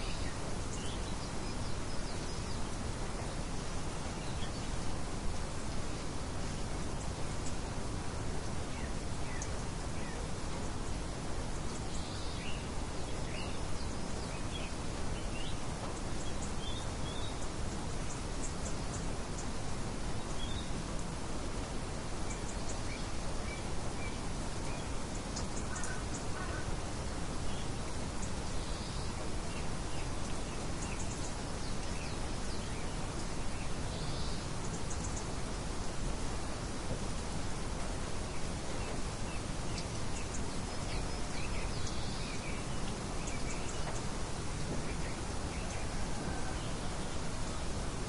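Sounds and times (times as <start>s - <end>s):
steady wind: 0.0s - 48.0s
faint bird chirps: 5.6s - 19.6s, 22.2s - 35.5s, 38.2s - 47.8s.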